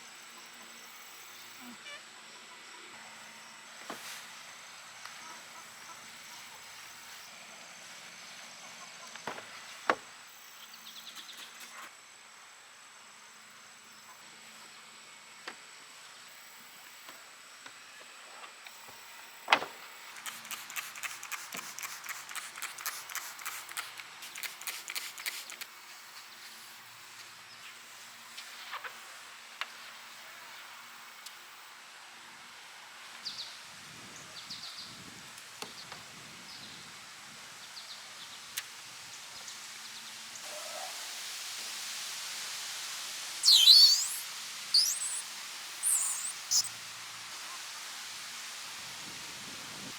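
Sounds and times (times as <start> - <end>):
faint insects: 0.0 - 49.9
thin high steady tone: 43.4 - 46.8.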